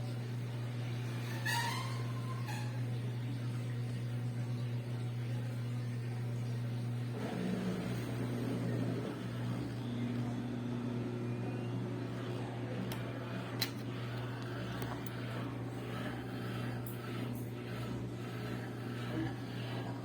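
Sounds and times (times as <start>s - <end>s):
washing machine humming: 0.0s - 20.0s.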